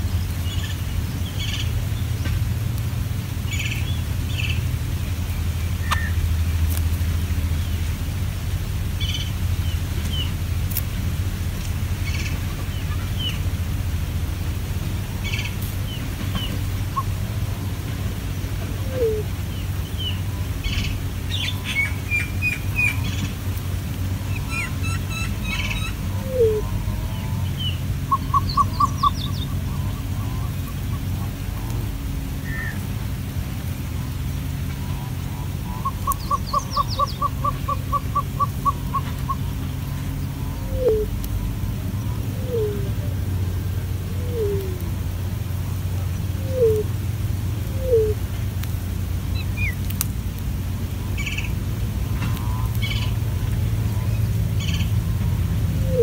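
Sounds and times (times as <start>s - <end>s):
steady low rumble: 0.0s - 56.0s
bird chirps and calls: 24.3s - 31.3s, 34.8s - 41.1s.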